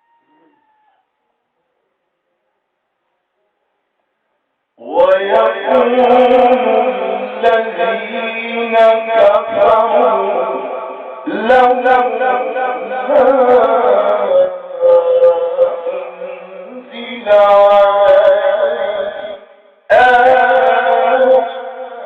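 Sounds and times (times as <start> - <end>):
man reciting melodically: 4.8 - 22.0.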